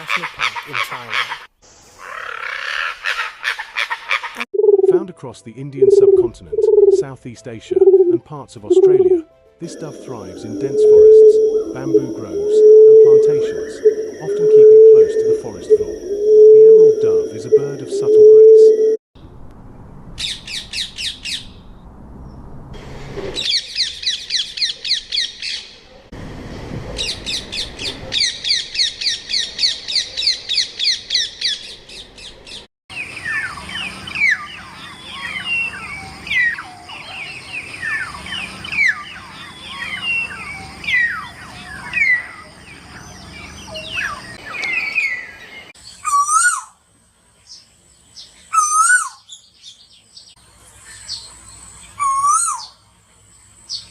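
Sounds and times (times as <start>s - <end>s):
fast high bird chirps: 5.8s - 7.0s
wavering bird calls: 5.8s - 7.0s, 7.8s - 9.2s, 9.8s - 19.0s, 27.0s - 46.8s, 48.5s - 49.4s, 50.9s - 52.8s
birds whistling downslurred: 7.8s - 19.0s.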